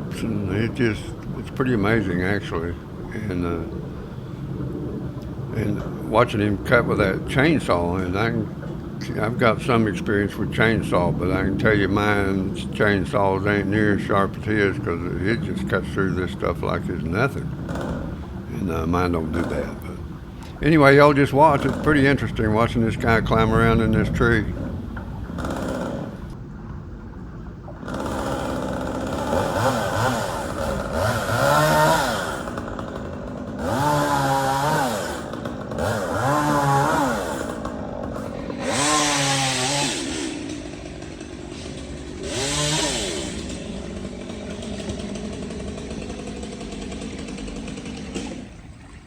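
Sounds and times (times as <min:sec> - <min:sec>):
chainsaw revving and cutting: 0:10.6 - 0:23.8, 0:24.6 - 0:26.4, 0:27.8 - 0:48.7.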